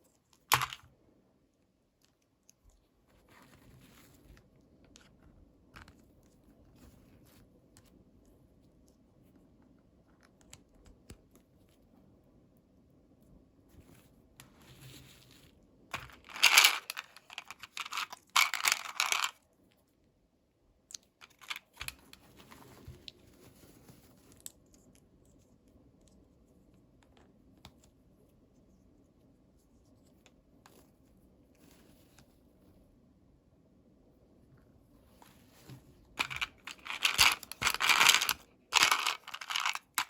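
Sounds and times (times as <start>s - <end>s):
small clicks and taps: 9.6s - 11.8s.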